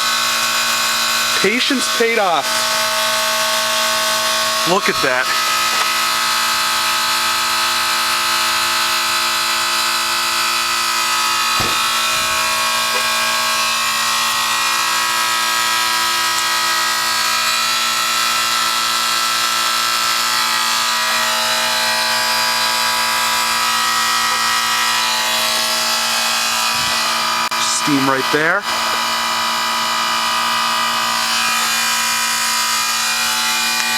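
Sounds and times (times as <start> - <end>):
heat pump compressor hum: 0.0 - 33.9
short knock: 11.6 - 12.4.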